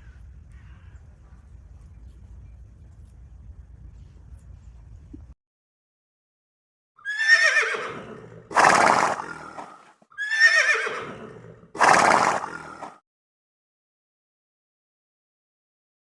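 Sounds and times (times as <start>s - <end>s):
horse neighing: 7.0s - 13.0s
horse snorting: 7.4s - 9.9s, 10.5s - 13.0s.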